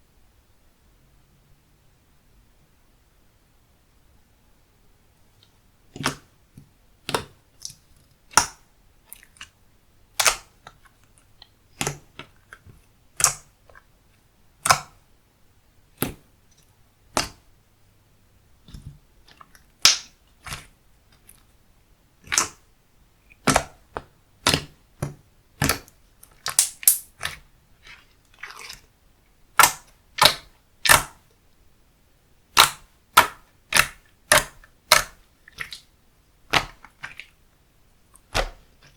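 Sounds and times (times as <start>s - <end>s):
slime popping and clicking: 26.4s - 27.4s, 32.5s - 35.8s.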